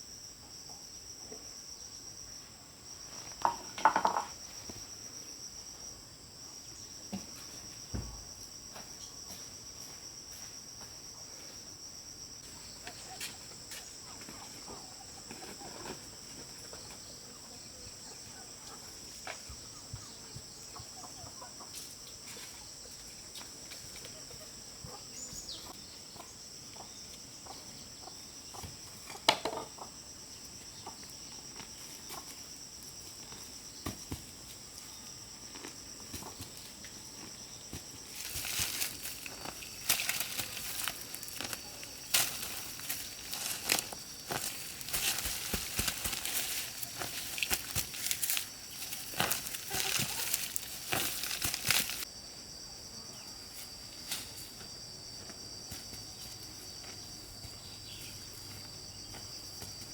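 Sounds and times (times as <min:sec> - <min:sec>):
rustling and crackling: 0:36.1 - 0:52.1
chickens clucking: 0:38.2 - 0:52.0.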